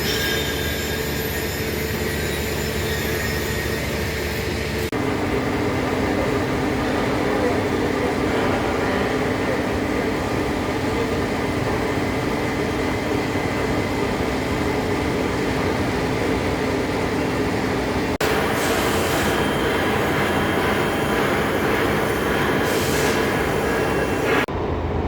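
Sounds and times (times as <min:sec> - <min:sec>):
lathe running: 0:15.7 - 0:24.5.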